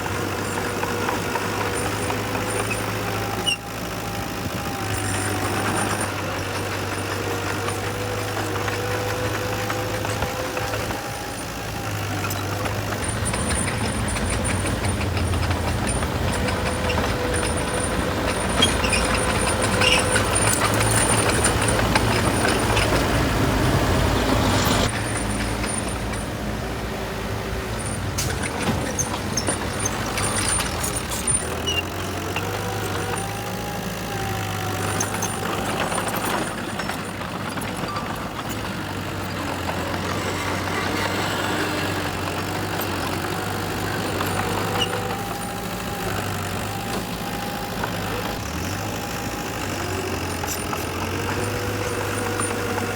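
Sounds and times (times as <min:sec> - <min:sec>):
machinery clicks and squeaks: 0:00.0 - 0:26.4, 0:27.7 - 0:52.9
diesel engine drone: 0:00.0 - 0:52.9.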